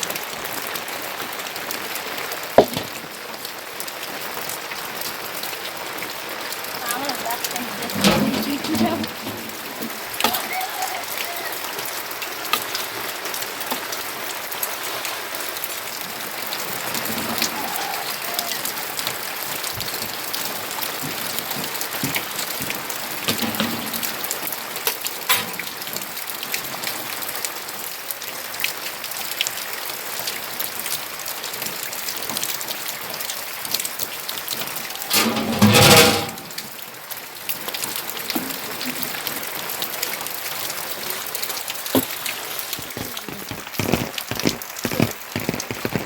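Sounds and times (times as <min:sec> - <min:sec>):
raindrops ticking on surface: 0:00.0 - 0:35.8, 0:36.4 - 0:46.0
steady rain falling: 0:00.0 - 0:46.0.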